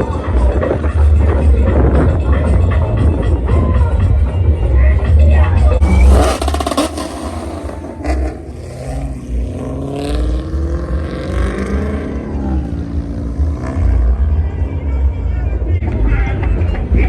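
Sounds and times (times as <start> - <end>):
car engine accelerating: 5.1 - 17.0.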